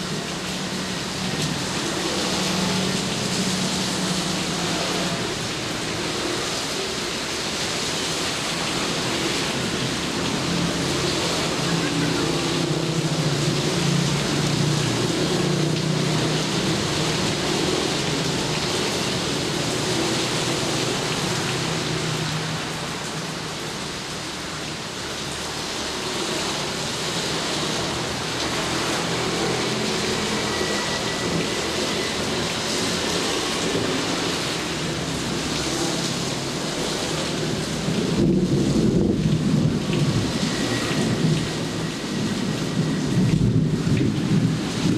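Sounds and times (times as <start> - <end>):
steady rain falling: 0.0 - 44.9
low rumble of thunder: 38.0 - 44.9.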